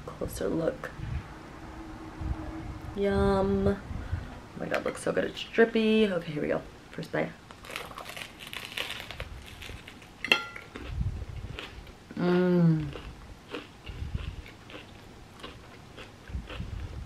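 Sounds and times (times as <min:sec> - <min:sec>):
bread crust crunching: 0:07.5 - 0:10.9
person humming mmm: 0:12.1 - 0:13.1
close-up chewing: 0:12.8 - 0:17.0.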